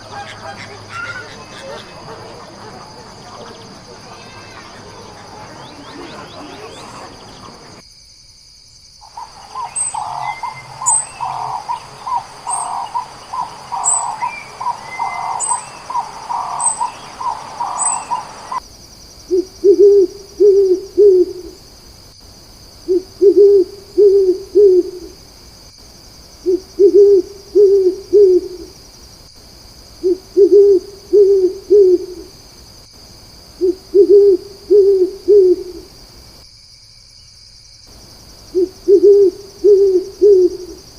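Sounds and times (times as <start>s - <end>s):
faint high chirps: 0.0s - 7.8s
higher bird call: 0.0s - 7.8s, 9.1s - 18.6s
owl hooting: 0.0s - 7.8s, 9.0s - 18.6s, 19.3s - 21.6s, 22.9s - 25.2s, 26.4s - 28.8s, 30.0s - 32.3s, 33.6s - 35.9s, 38.5s - 40.8s.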